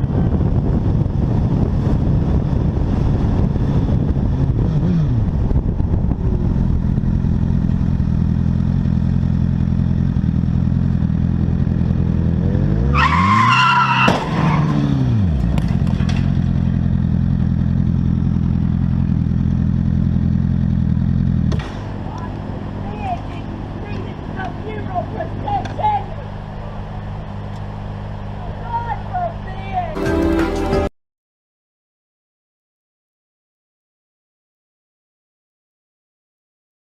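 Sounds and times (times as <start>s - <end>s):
car engine drone: 0.0s - 30.9s
road noise: 0.0s - 30.9s
tyre squeal: 12.9s - 15.0s
collision bang: 21.5s - 22.1s.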